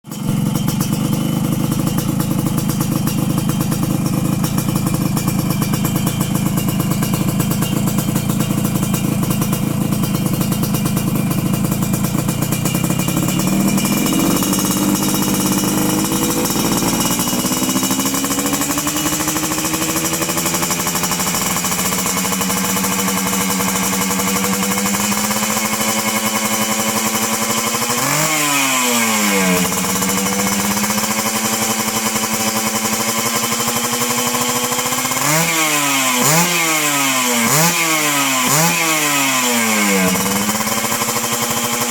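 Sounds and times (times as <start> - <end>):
two-stroke motorcycle engine: 0.0 - 41.9.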